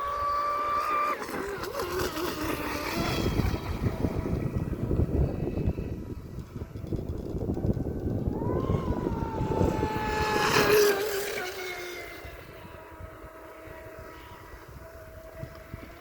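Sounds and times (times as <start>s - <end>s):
model boat motor whining: 0.0s - 16.0s
wind and choppy water rumble: 0.0s - 16.0s.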